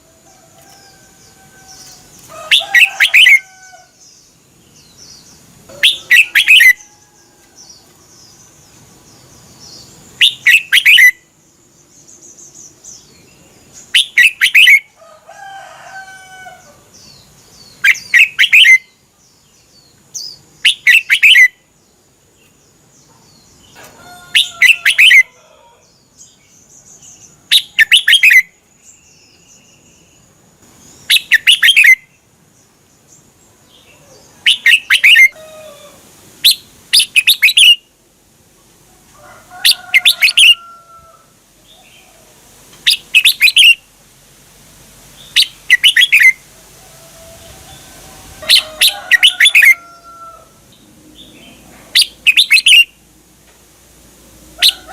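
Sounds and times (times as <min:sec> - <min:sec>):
bird bubbling song: 0:45.2 - 0:46.4.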